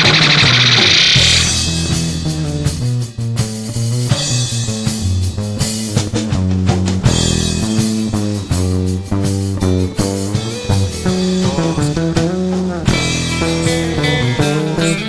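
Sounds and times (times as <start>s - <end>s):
electric guitar lead: 0.0s - 2.9s, 8.0s - 15.0s
bass guitar: 0.0s - 15.0s
drums: 0.0s - 15.0s.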